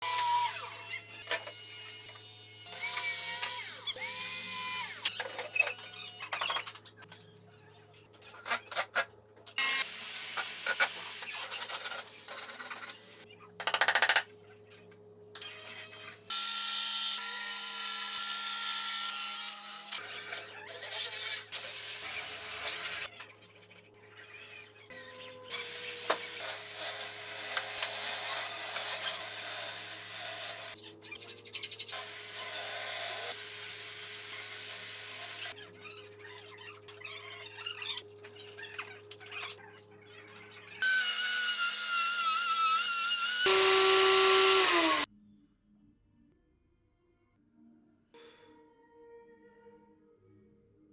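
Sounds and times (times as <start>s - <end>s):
power tool running: 16.3s - 20.0s, 32.0s - 35.6s, 40.8s - 45.1s.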